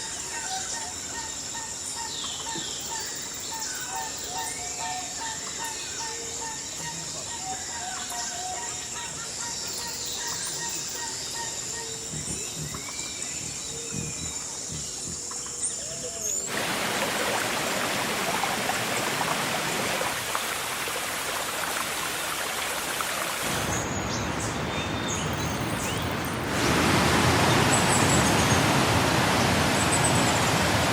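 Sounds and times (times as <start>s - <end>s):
birds chirping: 0.0s - 16.7s, 23.0s - 30.9s
rain hissing: 16.3s - 30.9s.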